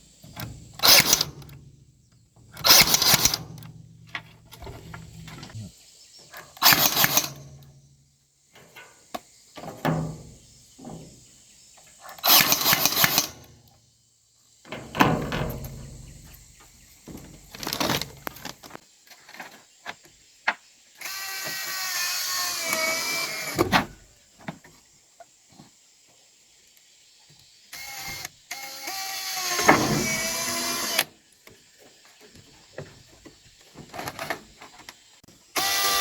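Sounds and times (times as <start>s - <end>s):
rasping scraping bursts: 0.3s - 1.6s, 2.5s - 3.7s
small motor whirring: 6.6s - 7.5s, 12.2s - 13.4s, 21.0s - 23.6s, 27.8s - 31.1s, 35.6s - 36.0s.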